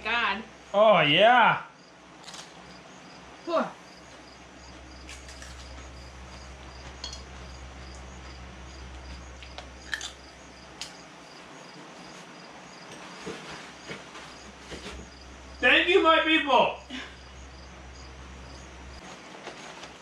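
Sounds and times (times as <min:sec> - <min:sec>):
insect chirping: 0:00.0 - 0:19.1
low hum: 0:02.0 - 0:11.4.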